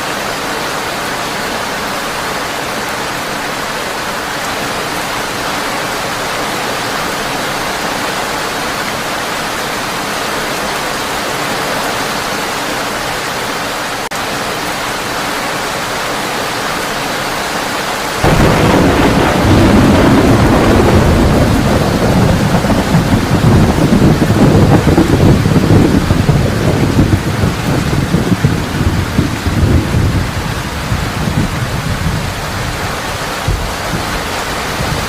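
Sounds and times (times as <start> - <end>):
heavy rain on a tin roof: 0.0 - 35.0
thunder rumbling: 18.2 - 35.0.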